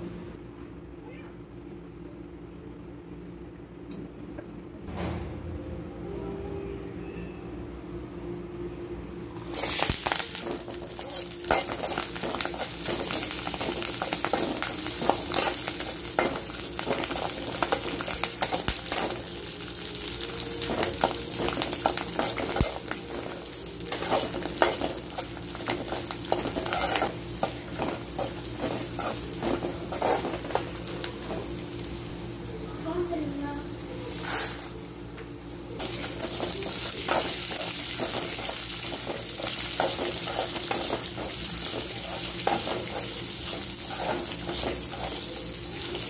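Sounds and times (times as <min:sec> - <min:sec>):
food sizzling in hot oil: 0:09.5 - 0:32.4, 0:35.8 - 0:46.0
metal spatula scraping a pan: 0:23.9 - 0:25.0, 0:25.7 - 0:30.6, 0:39.8 - 0:45.2.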